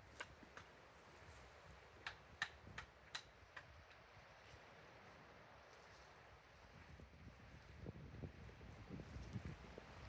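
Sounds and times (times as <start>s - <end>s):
wind buffeting the microphone: 7.6s - 10.0s.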